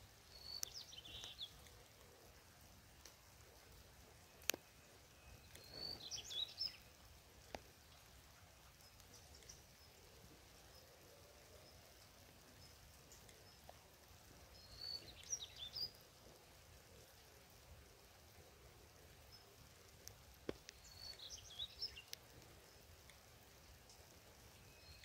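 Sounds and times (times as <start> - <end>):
rain hiss: 0.0 - 25.0
bird chirping: 0.2 - 1.7, 4.3 - 7.0, 14.4 - 16.0, 20.6 - 22.8, 24.6 - 25.0
water drip: 0.2 - 25.0.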